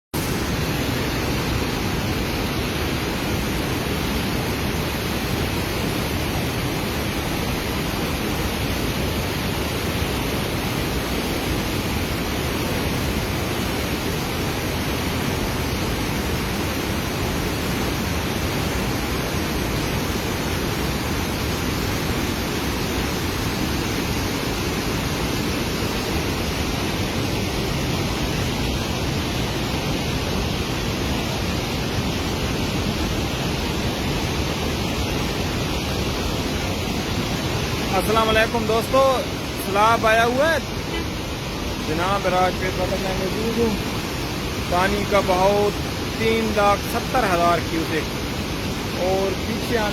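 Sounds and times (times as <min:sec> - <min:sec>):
floodwater rushing: 0:00.2 - 0:49.9.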